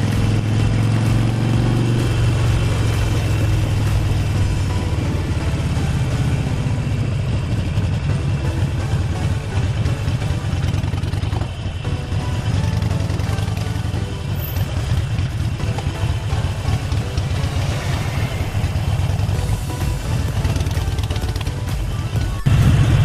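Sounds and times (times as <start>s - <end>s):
motorcycle engine rumbling: 0.0s - 23.0s.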